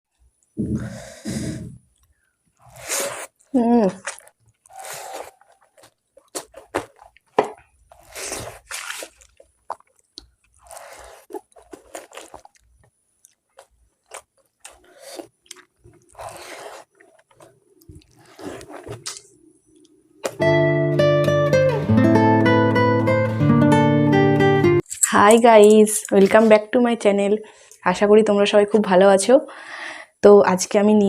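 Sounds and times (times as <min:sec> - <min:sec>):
biting and crunching food: 0:02.0 - 0:19.3
strummed acoustic guitar music: 0:20.4 - 0:24.8.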